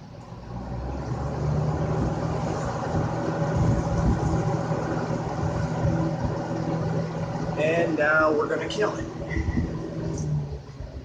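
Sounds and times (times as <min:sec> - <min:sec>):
fan air rush: 0:00.0 - 0:11.0
low motor hum: 0:00.0 - 0:11.0.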